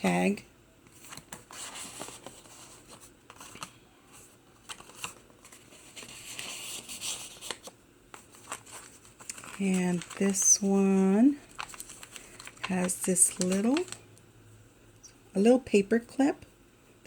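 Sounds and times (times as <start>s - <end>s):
paper pages rustling: 0.9s - 14.0s.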